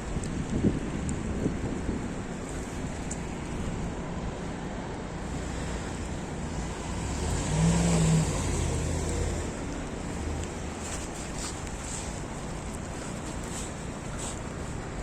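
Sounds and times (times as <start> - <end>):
street noise: 0.0 - 15.0
wind hiss: 0.0 - 15.0
vehicle engine passing: 5.2 - 11.0.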